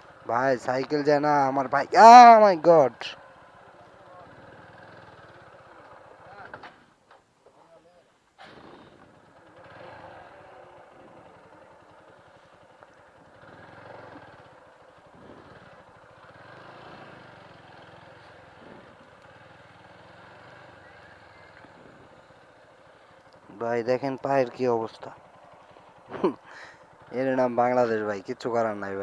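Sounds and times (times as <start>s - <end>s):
motorcycle engine running: 0.0s - 6.8s, 8.4s - 29.0s
rough engine noise: 0.0s - 7.0s, 8.4s - 29.0s.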